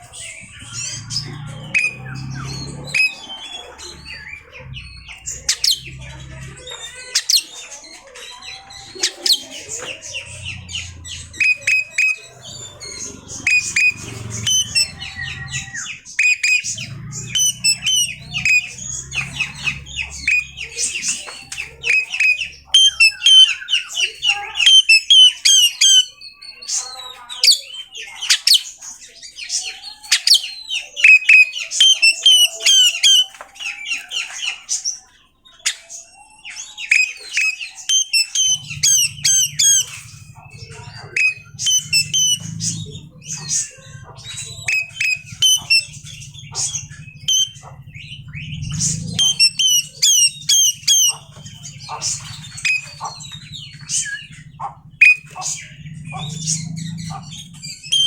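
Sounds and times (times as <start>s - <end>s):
magpie-robin singing: 0.0s - 58.0s
steady low hum: 38.4s - 58.0s.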